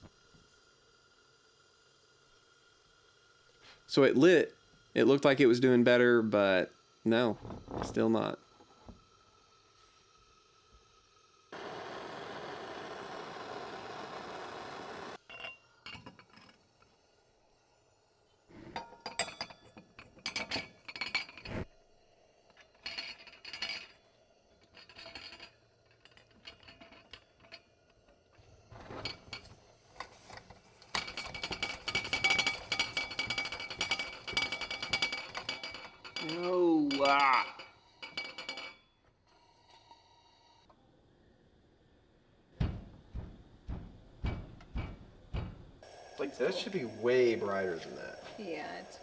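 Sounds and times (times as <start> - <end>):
steady hiss: 0.0 - 15.2, 41.3 - 49.0
metal and glass parts clinking: 15.3 - 16.6, 24.7 - 27.6, 28.8 - 39.0.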